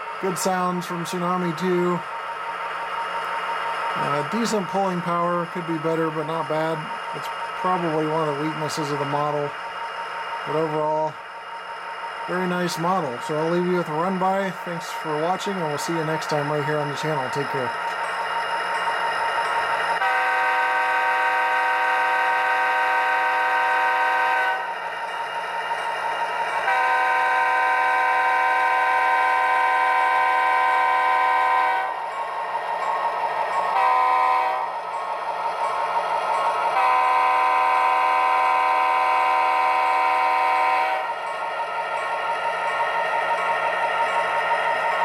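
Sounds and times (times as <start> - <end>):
locomotive engine running: 0.0 - 45.0
model locomotive horn chord: 20.0 - 24.7, 26.6 - 32.0, 33.7 - 34.7, 36.7 - 41.1.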